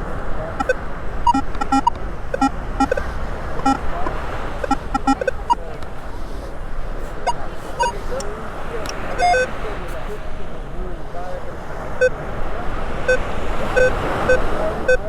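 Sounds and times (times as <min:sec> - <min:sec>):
metal detector beeps: 0:00.6 - 0:03.8, 0:04.6 - 0:05.6, 0:07.2 - 0:08.2, 0:08.9 - 0:09.5, 0:13.8 - 0:15.0.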